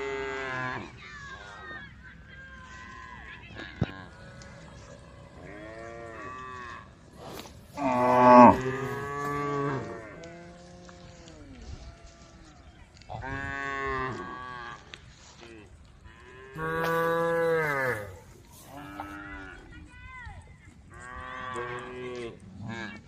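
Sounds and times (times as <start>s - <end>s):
cow mooing: 5.4s - 6.8s, 7.8s - 10.9s, 16.6s - 19.1s.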